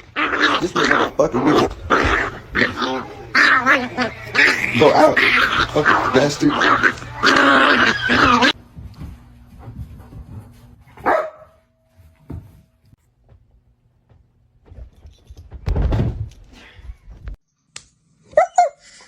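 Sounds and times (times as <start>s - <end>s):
dog barking: 11.0s - 11.6s.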